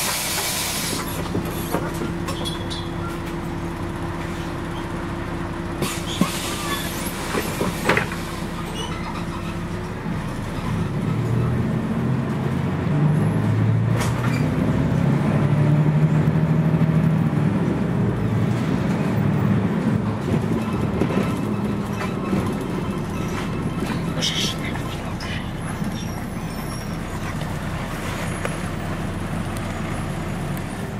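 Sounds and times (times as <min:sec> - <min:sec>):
bus diesel engine running: 0:00.0 - 0:30.9
knocks and rattles: 0:20.1 - 0:26.0.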